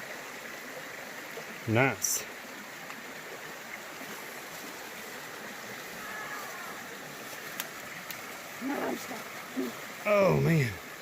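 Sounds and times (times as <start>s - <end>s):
creek running over rocks: 0.0s - 11.0s
faint sharp clicks: 7.4s - 8.3s.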